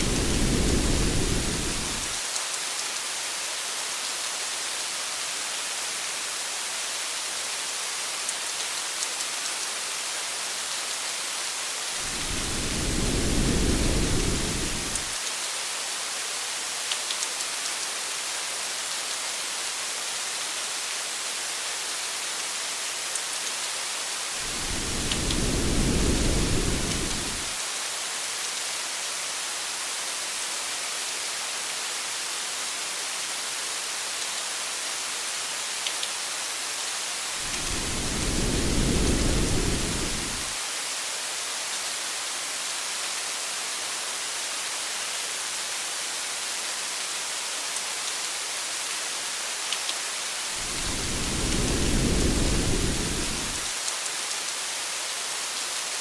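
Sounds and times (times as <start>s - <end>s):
low rumbles of thunder: 0.0s - 2.2s, 12.1s - 15.1s, 24.5s - 27.5s, 37.5s - 40.5s, 50.6s - 53.7s
rain hiss: 0.0s - 56.0s.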